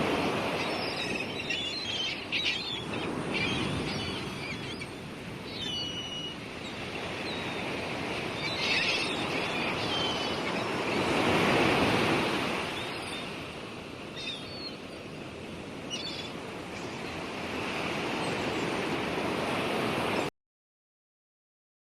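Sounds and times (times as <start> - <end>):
sea waves washing in: 0.0 - 20.3
seagull calls: 0.2 - 11.4.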